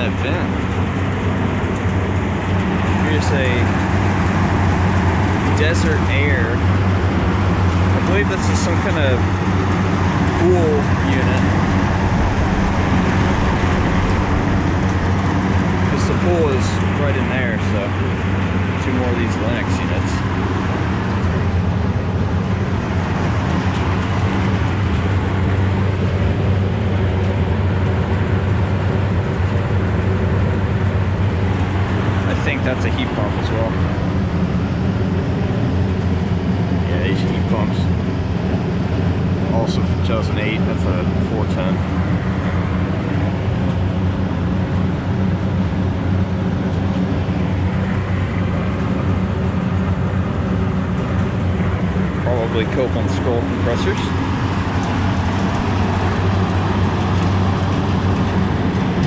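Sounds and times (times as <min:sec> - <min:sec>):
air conditioner fan noise: 0:00.0 - 0:59.0
hvac equipment humming: 0:00.0 - 0:59.0.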